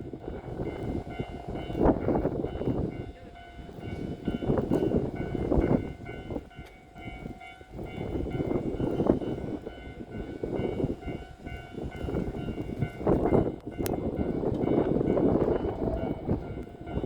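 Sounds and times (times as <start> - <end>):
train wheels clattering: 0.0 - 17.0.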